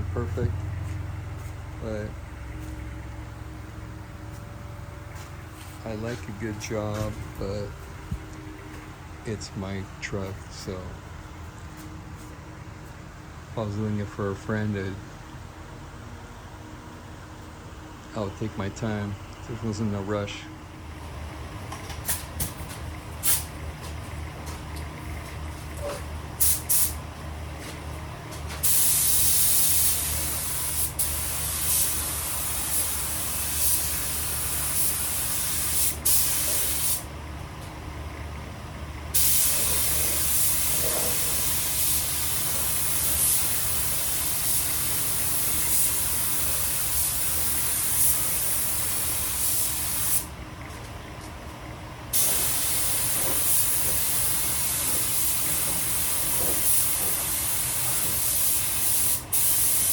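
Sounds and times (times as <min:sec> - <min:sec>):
low hum: 0:00.0 - 0:21.7
paint spray gun hissing: 0:23.2 - 0:23.5, 0:26.4 - 0:27.0, 0:28.6 - 0:37.1, 0:39.1 - 0:50.3, 0:52.1 - 0:59.9.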